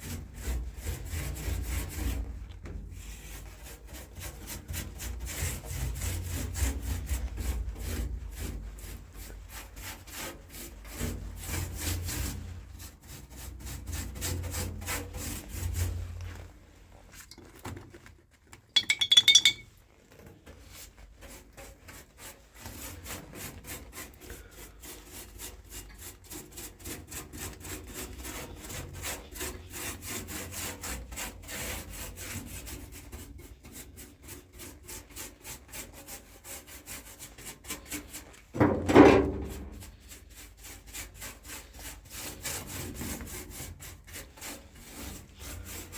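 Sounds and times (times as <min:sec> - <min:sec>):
sharp metallic clink: 0:18.8 - 0:19.7.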